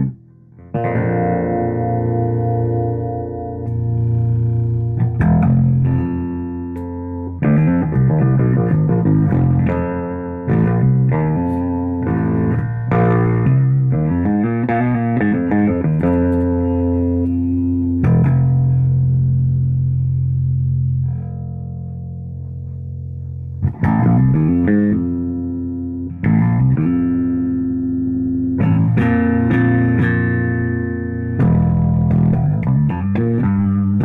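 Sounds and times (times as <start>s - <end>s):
electric bass notes: 0.0s - 34.0s.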